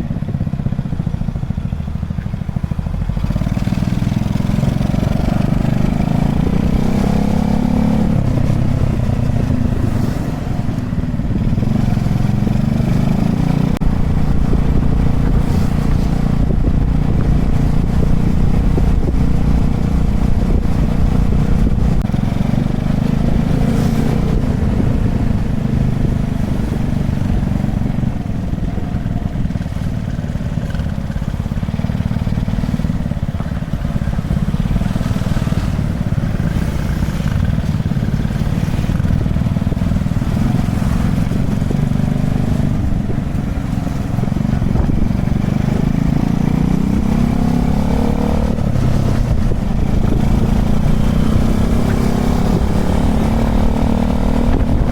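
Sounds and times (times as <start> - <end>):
small motorbike engine running: 0.0 - 54.9
wind and road noise: 0.0 - 54.9.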